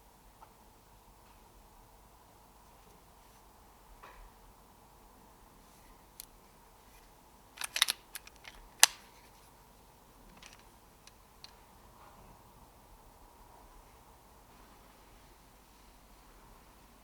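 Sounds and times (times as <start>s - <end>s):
air rifle snap: 7.6s - 9.2s
air rifle mechanical clicks: 7.6s - 9.4s, 10.3s - 11.6s.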